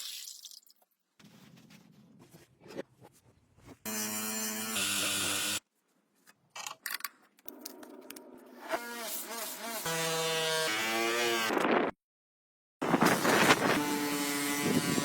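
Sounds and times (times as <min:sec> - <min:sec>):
electric power tool buzzing: 0:03.9 - 0:05.6, 0:13.6 - 0:15.0.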